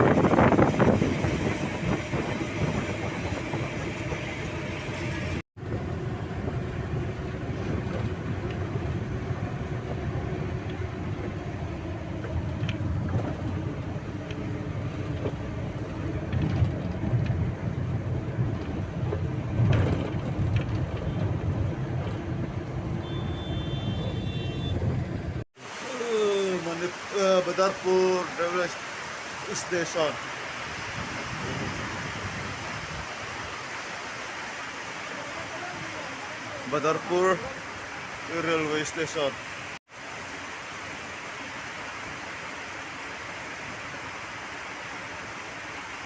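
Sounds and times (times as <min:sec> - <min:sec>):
train rumbling on rails: 0:00.0 - 0:25.4.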